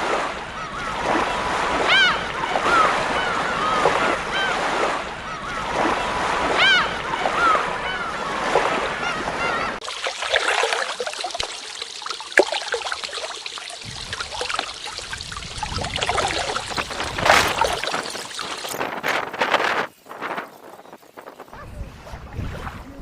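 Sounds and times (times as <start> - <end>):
water lapping at shore: 0.0 - 23.0
bird calls: 1.8 - 5.8, 6.5 - 9.8, 16.1 - 21.7.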